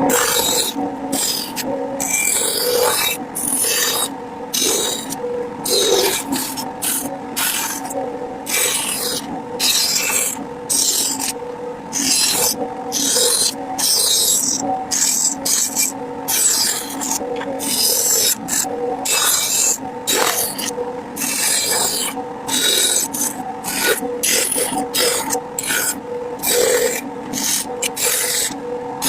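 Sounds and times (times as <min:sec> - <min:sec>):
rasp scraping wood: 0:12.0 - 0:28.6.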